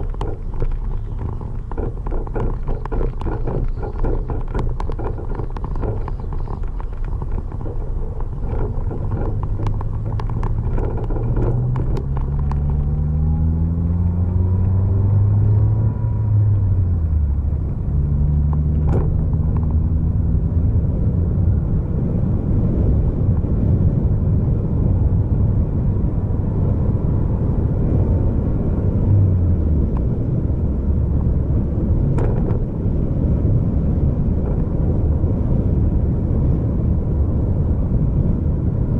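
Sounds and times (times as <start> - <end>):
sharp clicks or knocks: 0.0 - 13.4
road noise rumble: 0.0 - 38.9
vehicle engine accelerating: 0.0 - 38.9.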